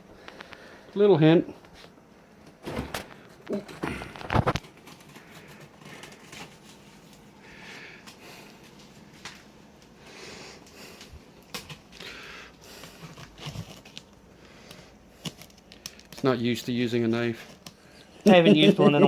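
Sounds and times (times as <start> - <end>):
rustling and scraping on cardboard: 12.8 - 14.0.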